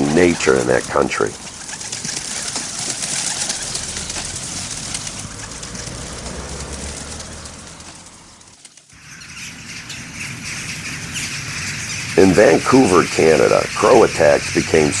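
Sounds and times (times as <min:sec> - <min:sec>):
bird calls: 0:00.0 - 0:05.8, 0:09.0 - 0:15.0
steady hiss: 0:10.2 - 0:15.0.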